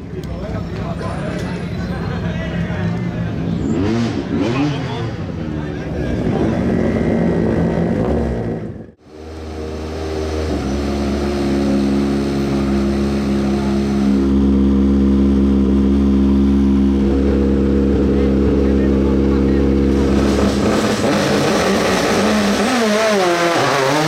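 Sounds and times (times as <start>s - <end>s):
rally car engine: 0.0s - 24.0s
engine running steadily: 4.6s - 22.6s.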